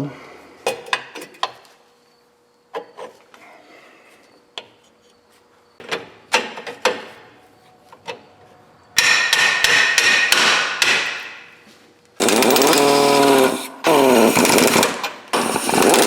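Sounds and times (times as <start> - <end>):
hammer striking metal: 9.0 - 11.5.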